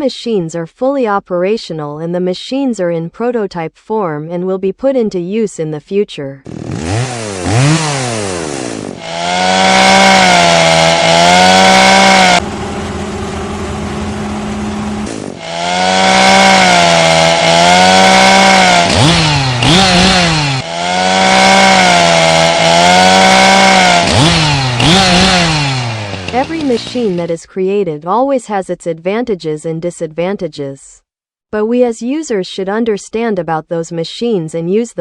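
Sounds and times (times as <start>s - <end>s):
chainsaw engine revving: 6.4s - 27.3s.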